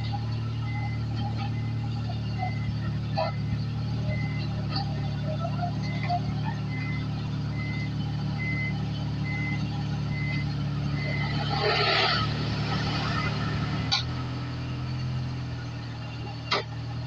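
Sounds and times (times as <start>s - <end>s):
reversing beeper: 0.0s - 14.0s
vehicle engine running: 0.0s - 17.0s.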